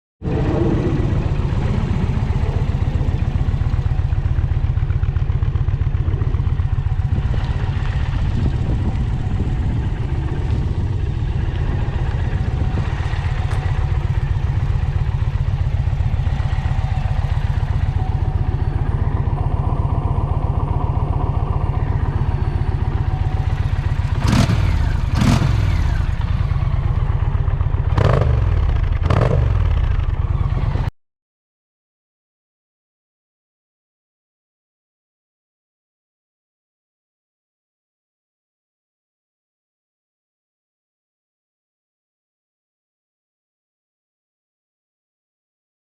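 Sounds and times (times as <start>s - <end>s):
motorcycle engine idling and revving: 0.2s - 31.0s.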